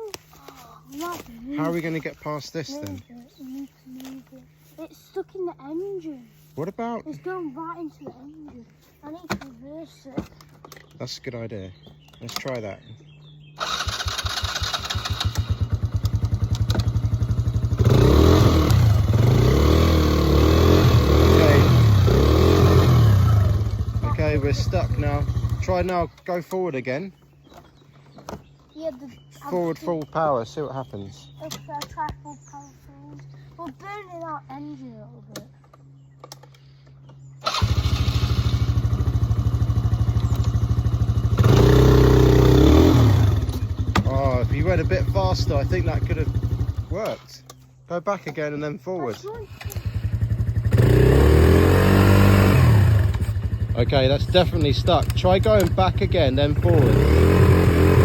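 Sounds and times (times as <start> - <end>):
quad bike engine revving: 13.6 - 26.1, 37.4 - 47.2, 49.3 - 58.0.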